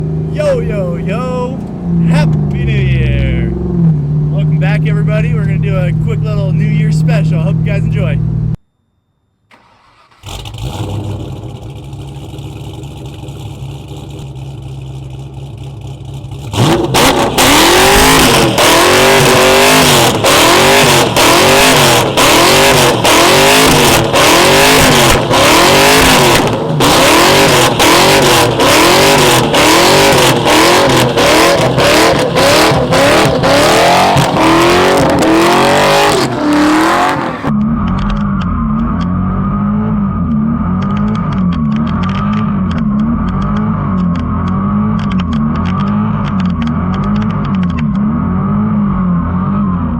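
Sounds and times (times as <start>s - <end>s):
car engine revving: 0.0s - 8.6s, 9.5s - 49.9s
sharp cracks: 15.6s - 39.0s.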